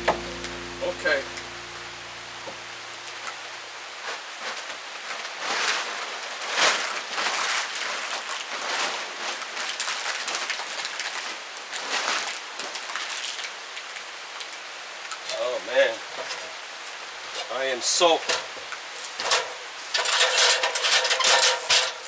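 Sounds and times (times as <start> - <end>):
rain pattering on plastic tarp: 2.5 - 22.0.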